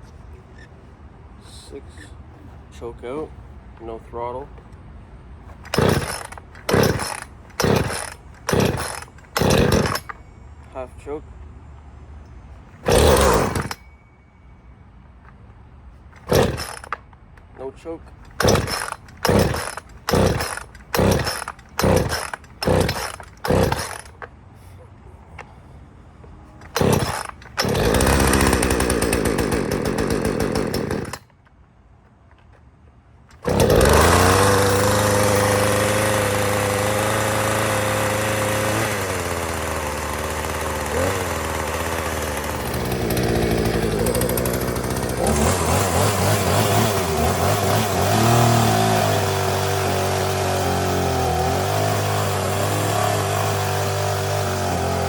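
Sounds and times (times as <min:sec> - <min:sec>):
chainsaw pull cord: 0:05.5 - 0:10.2, 0:12.8 - 0:13.8, 0:16.2 - 0:17.0, 0:17.6 - 0:24.3, 0:26.6 - 0:31.3, 0:33.3 - 0:55.0
chainsaw engine running: 0:05.6 - 0:10.2, 0:12.8 - 0:13.8, 0:16.2 - 0:17.0, 0:18.2 - 0:24.2, 0:26.6 - 0:31.3, 0:33.3 - 0:55.0.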